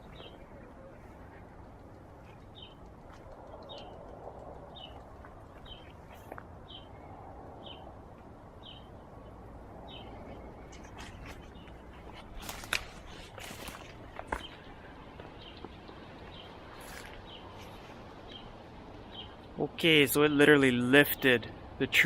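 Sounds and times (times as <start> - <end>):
small bird chirping: 0.0 - 7.0
steady outdoor hiss: 0.0 - 22.0
sharp clicks and rustles: 10.7 - 14.6.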